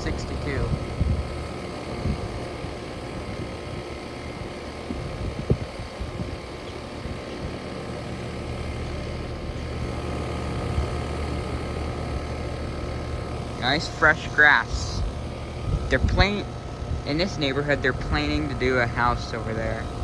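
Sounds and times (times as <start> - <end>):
air conditioning units humming: 0.0 - 20.0.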